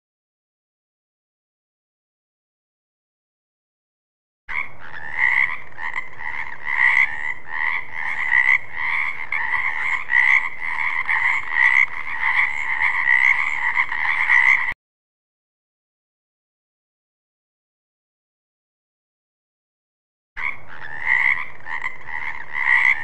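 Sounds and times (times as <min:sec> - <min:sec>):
frogs croaking in chorus: 0:04.5 - 0:14.8, 0:20.4 - 0:23.0.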